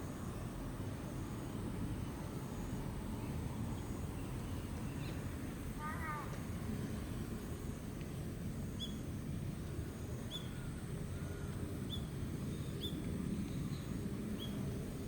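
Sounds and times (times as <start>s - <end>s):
low outdoor rumble: 0.0s - 15.0s
small bird chirping: 8.8s - 9.0s, 10.2s - 10.6s, 11.8s - 14.6s.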